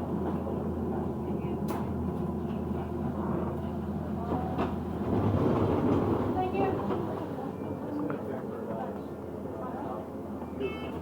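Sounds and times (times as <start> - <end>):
bus engine hum: 0.0 - 11.0.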